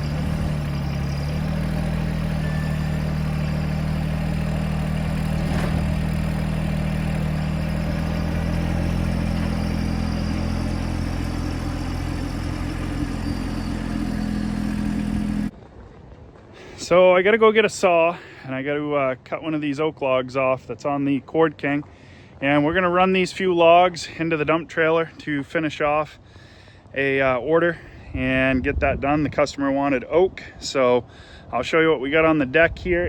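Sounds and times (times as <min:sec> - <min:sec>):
tractor engine running: 0:00.0 - 0:15.5.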